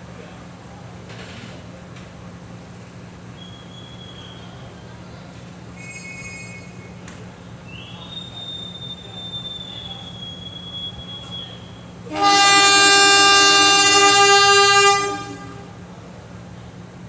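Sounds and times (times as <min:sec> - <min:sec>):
train horn blast: 0:12.0 - 0:15.8.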